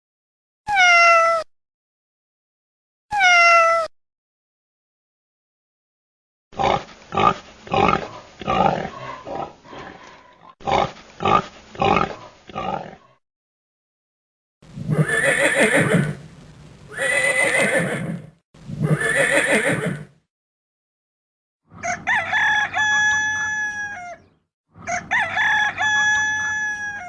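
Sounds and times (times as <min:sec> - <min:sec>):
horse neighing: 0:14.8 - 0:16.2, 0:16.9 - 0:20.2
rooster crowing: 0:21.7 - 0:27.0.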